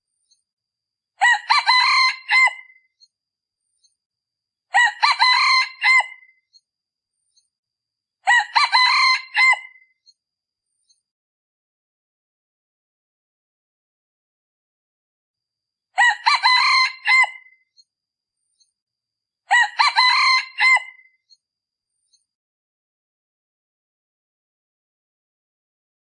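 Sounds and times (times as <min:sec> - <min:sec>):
rooster crowing: 0:01.2 - 0:02.8, 0:04.7 - 0:06.3, 0:08.3 - 0:09.8, 0:16.0 - 0:17.6, 0:19.5 - 0:21.1.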